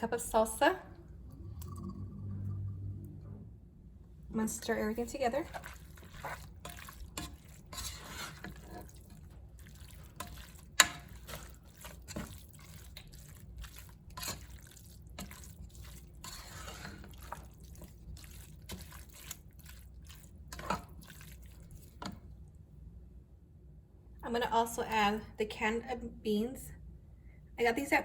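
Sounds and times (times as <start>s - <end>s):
spoon stirring food in a pot: 4.5s - 22.4s.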